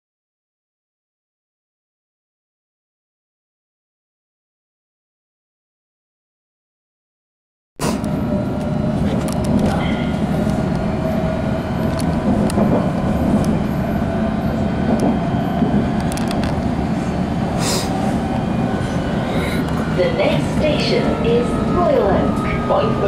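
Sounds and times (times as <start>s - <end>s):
train wheels rumbling on rails: 7.8s - 23.0s.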